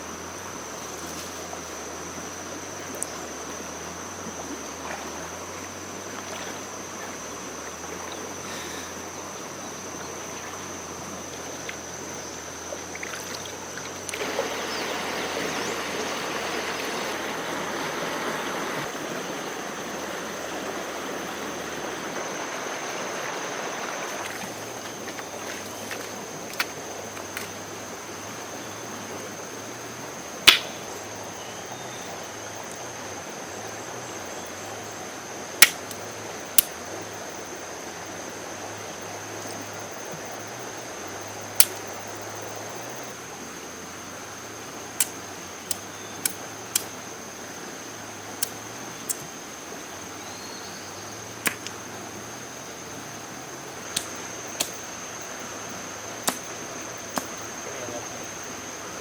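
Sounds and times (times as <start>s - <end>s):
background hiss: 0.0s - 59.0s.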